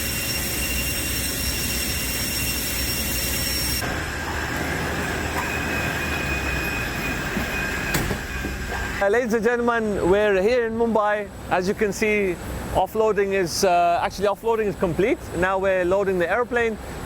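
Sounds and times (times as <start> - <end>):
turbine whine: 0.0 - 9.1.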